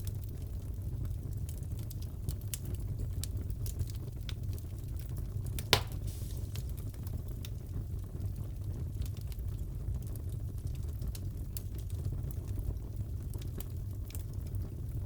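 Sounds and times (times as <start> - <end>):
fire crackling in a fireplace: 0.0 - 15.0
loud fire pop: 5.6 - 6.8.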